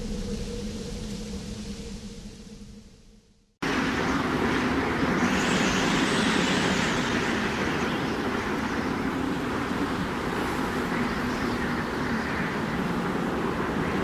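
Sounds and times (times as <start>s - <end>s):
strong wind blowing: 3.6s - 14.0s.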